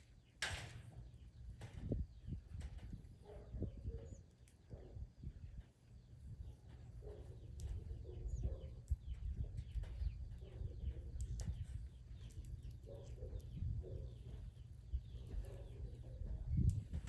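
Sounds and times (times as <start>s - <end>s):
birds chirping: 5.9s - 17.0s
steady low rumble: 7.4s - 17.0s.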